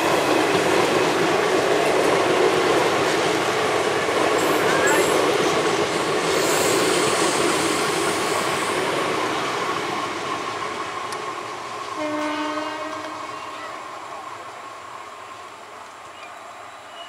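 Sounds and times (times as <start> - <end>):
train coaches running past: 0.0 - 17.0
train horn: 12.0 - 13.6.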